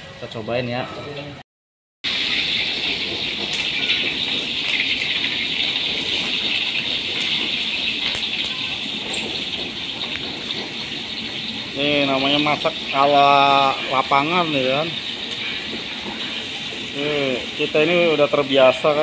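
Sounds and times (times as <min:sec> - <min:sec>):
food sizzling in hot oil: 0:02.0 - 0:19.0.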